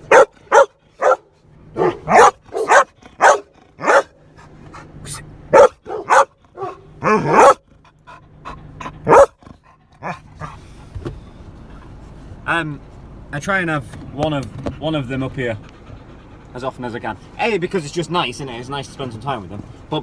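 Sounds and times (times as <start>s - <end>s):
dog barking: 0.0s - 4.2s, 5.5s - 7.6s, 9.0s - 9.4s.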